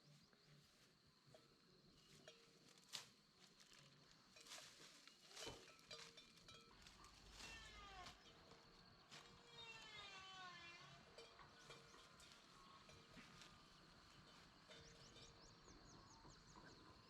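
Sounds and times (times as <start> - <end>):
drawn-out animal calls: 6.7 - 8.7, 9.3 - 17.0.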